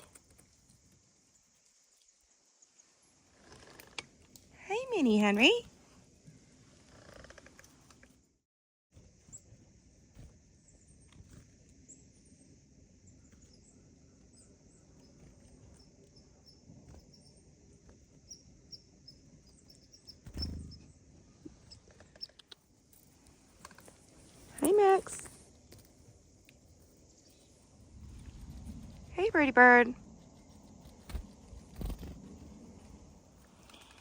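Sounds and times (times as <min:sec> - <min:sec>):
small clicks: 0:21.6 - 0:24.0, 0:33.5 - 0:34.0.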